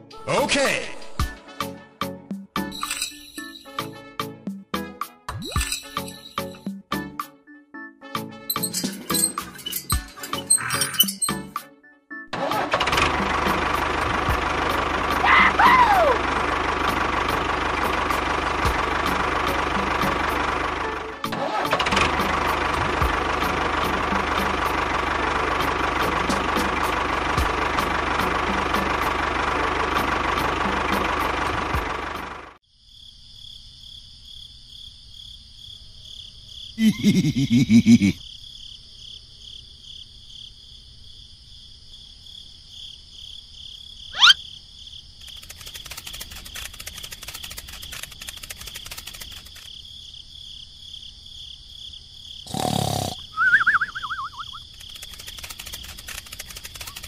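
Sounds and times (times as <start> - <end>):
tractor engine ticking: 12.7 - 15.2, 16.1 - 21.0, 21.8 - 32.5, 45.2 - 49.7, 54.6 - 57.0
quick rising whistle: 44.2 - 44.4, 53.3 - 54.6.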